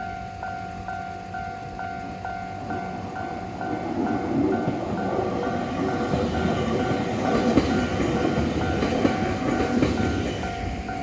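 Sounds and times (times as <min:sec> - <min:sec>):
crossing warning bell ringing: 0:00.0 - 0:11.0
train wheels clacking over rail joints: 0:03.5 - 0:11.0.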